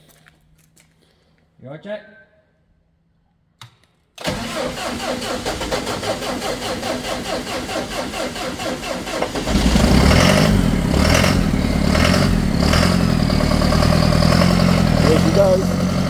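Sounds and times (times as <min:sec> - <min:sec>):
starter motor cranking engine: 0:04.2 - 0:16.0
tractor engine running: 0:04.2 - 0:16.0.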